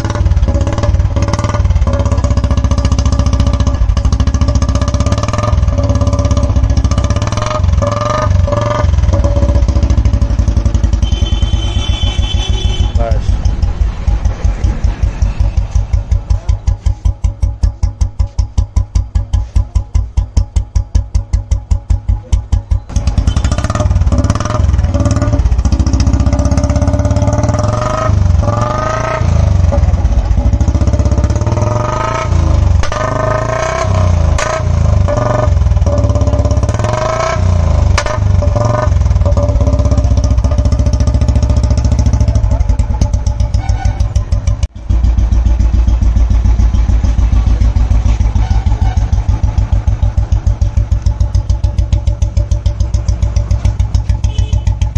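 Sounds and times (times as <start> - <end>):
motorcycle engine idling and revving: 0.0 - 54.9.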